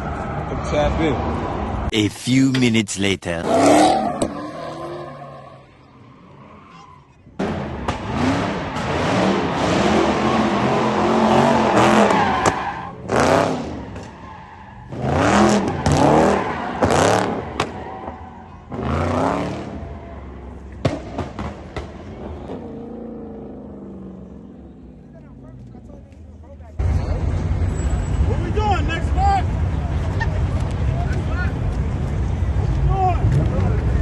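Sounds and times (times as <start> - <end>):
car engine revving hard: 7.9 - 12.2, 14.9 - 17.4, 18.7 - 19.8.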